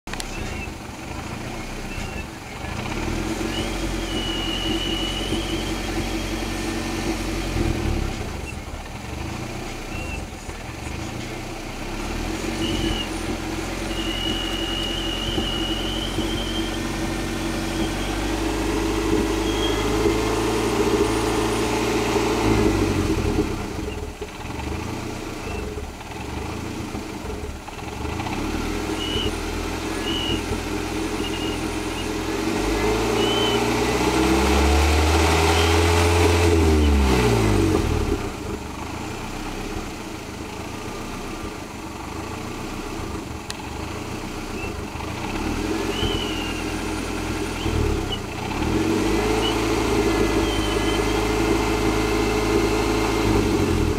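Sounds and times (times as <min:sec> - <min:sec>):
car engine idling unevenly: 0:00.1 - 0:53.9
thin high whistle: 0:01.8 - 0:02.4, 0:03.4 - 0:06.8, 0:12.4 - 0:20.2, 0:28.9 - 0:30.6, 0:31.2 - 0:32.2, 0:33.0 - 0:33.9, 0:35.4 - 0:36.1, 0:45.8 - 0:46.8, 0:49.3 - 0:51.4.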